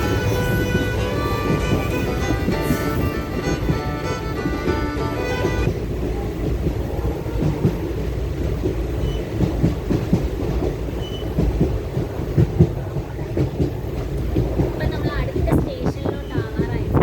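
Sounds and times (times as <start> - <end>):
background music: 0.0 - 5.7
train rumbling on track: 0.0 - 17.0
wheels knocking and rattling: 0.0 - 17.0.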